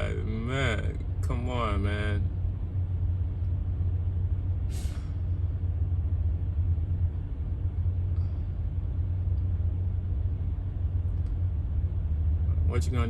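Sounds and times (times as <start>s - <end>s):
diesel truck engine idling: 0.0s - 13.0s
short hiss: 4.7s - 5.2s.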